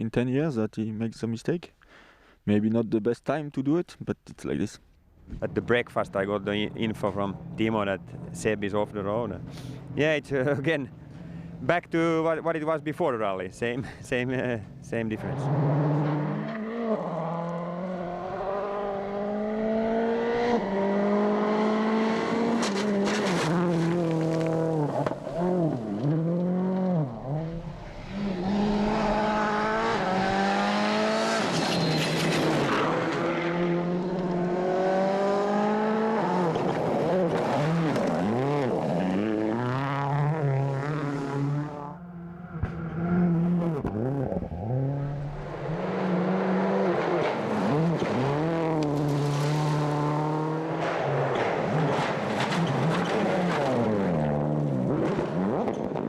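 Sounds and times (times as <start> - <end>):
rally car engine revving: 15.1 - 56.0
rushing noise: 27.4 - 32.0.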